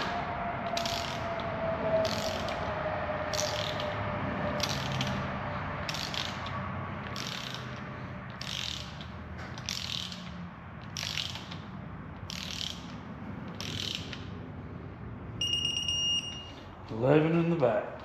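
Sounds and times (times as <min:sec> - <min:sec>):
ratchet wrench ratcheting: 0:00.0 - 0:04.0, 0:04.6 - 0:14.4
high electronic beep: 0:15.4 - 0:16.6.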